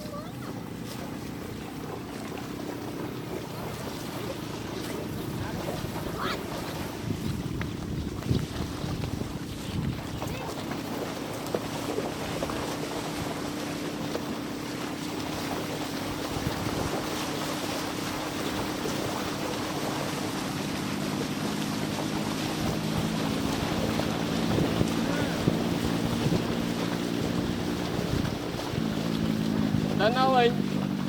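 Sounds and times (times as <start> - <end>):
wind buffeting microphone: 4.5 - 11.0, 15.4 - 21.3, 22.1 - 31.0
engine humming: 10.2 - 31.0.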